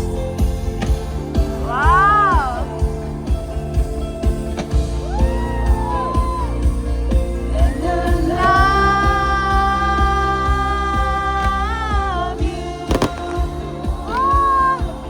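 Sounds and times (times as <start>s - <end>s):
live pop band playing: 0.0s - 15.0s
man singing: 7.5s - 15.0s.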